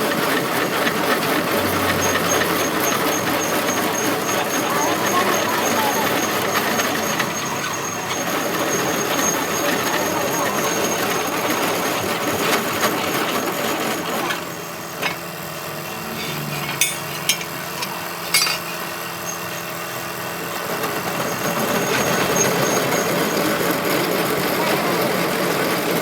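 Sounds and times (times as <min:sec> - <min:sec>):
machinery running: 0:00.0 - 0:26.0
sharp metal clinks: 0:16.0 - 0:19.7.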